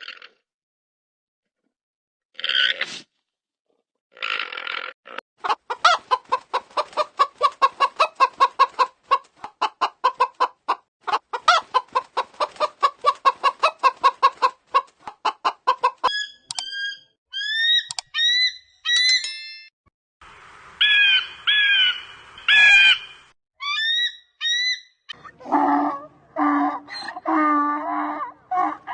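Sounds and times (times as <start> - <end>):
chicken squawking calls: 5.4 - 16.3, 20.8 - 28.9
chicken clucking: 5.4 - 16.6.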